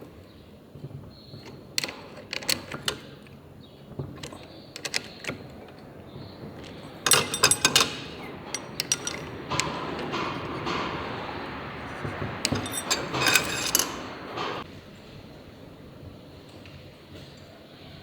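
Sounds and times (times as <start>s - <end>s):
metal tools clinking: 6.6s - 14.6s.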